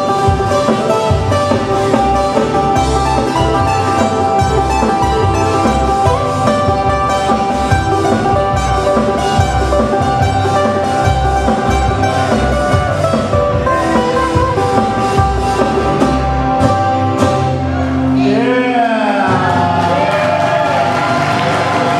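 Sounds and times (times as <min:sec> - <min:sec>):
drums with steady beat: 0:00.0 - 0:17.8
bass: 0:00.0 - 0:21.9
plucked guitars: 0:00.0 - 0:21.9.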